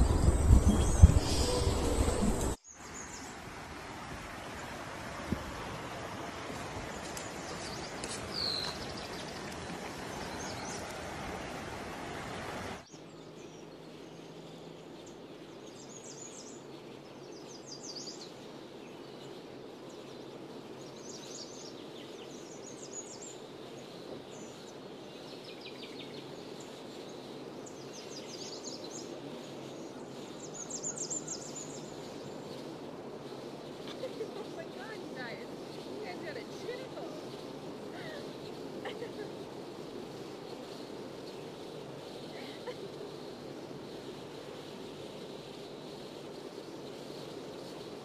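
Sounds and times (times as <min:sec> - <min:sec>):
small birds chirping: 0:00.0 - 0:03.4, 0:06.0 - 0:11.6, 0:12.2 - 0:48.0
steady rushing noise: 0:00.0 - 0:12.9, 0:26.0 - 0:48.0.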